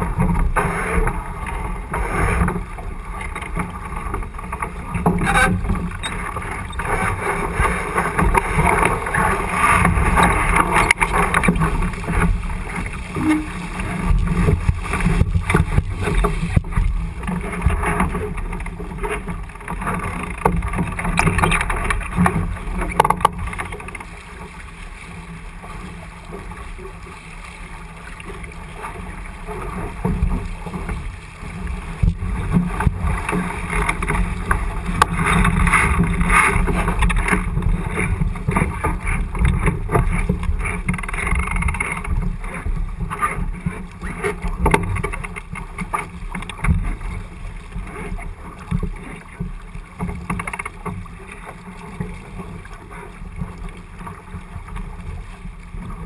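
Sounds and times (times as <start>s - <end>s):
water rushing past hull: 0.0s - 56.0s.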